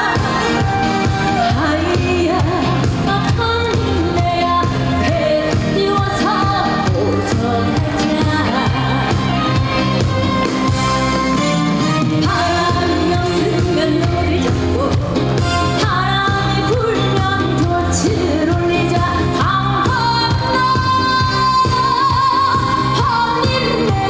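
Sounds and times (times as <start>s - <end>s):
amplified backing track: 0.0s - 24.0s
woman singing folk song: 1.4s - 8.9s, 12.3s - 24.0s.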